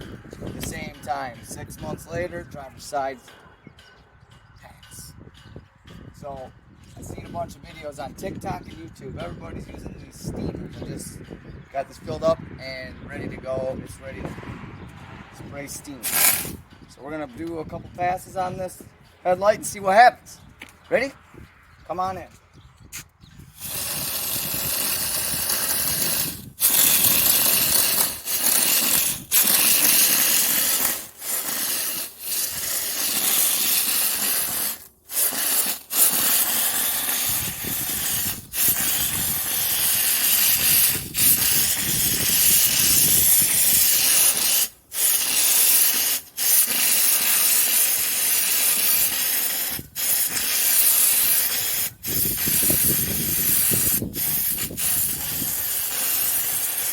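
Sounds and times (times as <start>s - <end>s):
steamer hissing: 16.0s - 16.6s, 23.6s - 56.9s.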